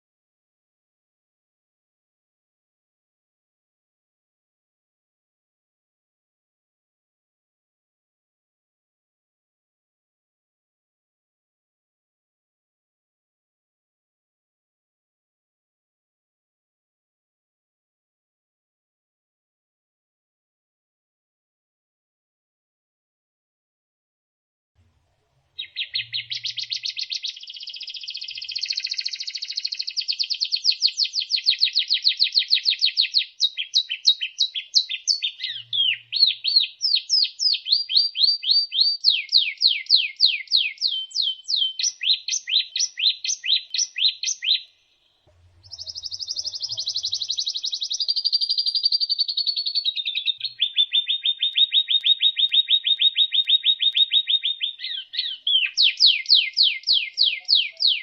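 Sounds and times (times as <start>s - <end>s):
songbird singing trills: 25.6s - 58.0s.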